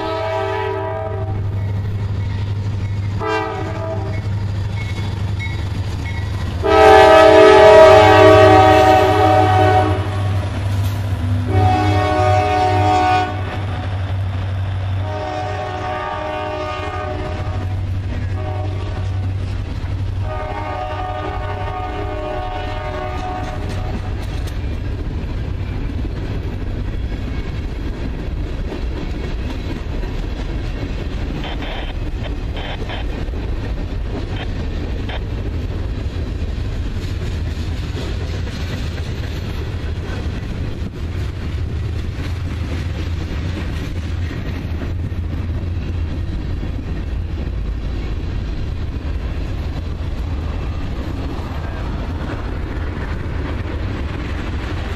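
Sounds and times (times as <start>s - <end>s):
locomotive horn blasts: 0.0s - 1.5s, 3.2s - 4.3s, 6.6s - 10.5s, 11.4s - 13.6s, 15.0s - 19.4s, 20.2s - 24.1s
train rumbling past: 0.0s - 54.9s
wheels clicking over rail joints: 23.0s - 54.9s.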